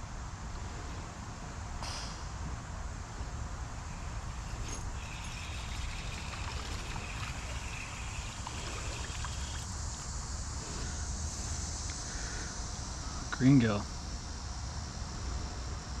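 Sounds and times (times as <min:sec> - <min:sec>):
high insect buzz: 0:03.3 - 0:15.8
creek water flowing: 0:03.7 - 0:10.2.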